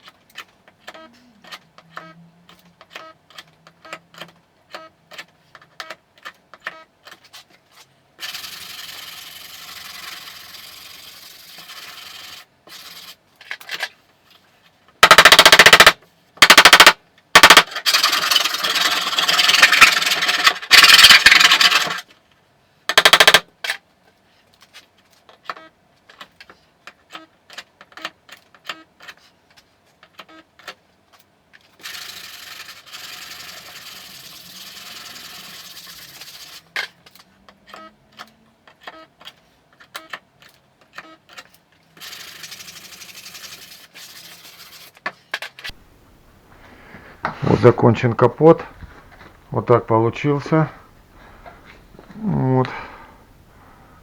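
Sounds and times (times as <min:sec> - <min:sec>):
loud harsh rattling bursts: 0:15.0 - 0:22.0, 0:22.9 - 0:23.4
steady hiss: 0:45.8 - 0:54.0.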